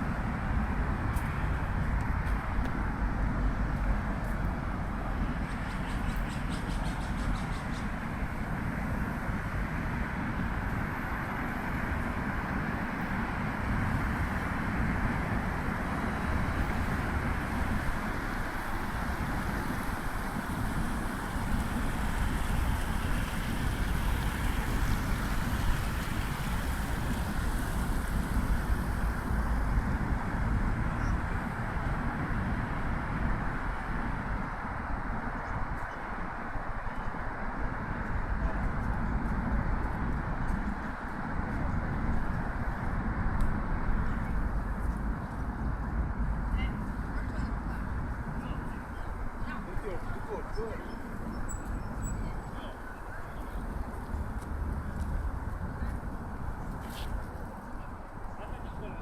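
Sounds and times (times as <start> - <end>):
traffic rumble: 0.0 - 59.0.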